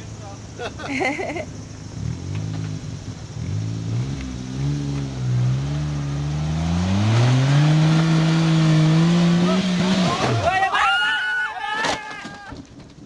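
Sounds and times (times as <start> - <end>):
engine revving under load: 1.6 - 10.5.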